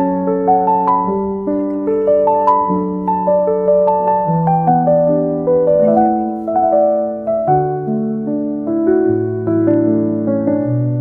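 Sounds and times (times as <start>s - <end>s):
soft piano music: 0.0s - 11.0s.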